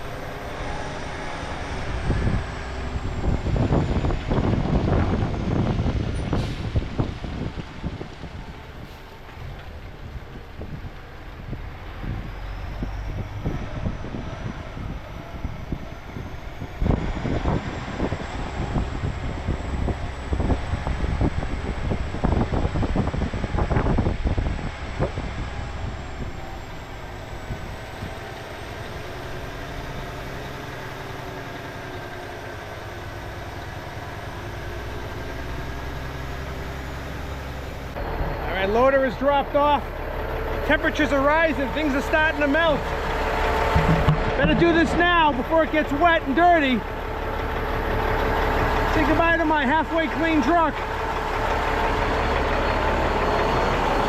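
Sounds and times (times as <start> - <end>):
heavy diesel engine running: 0.0 - 54.0
loud clanks and knocks: 43.5 - 45.0.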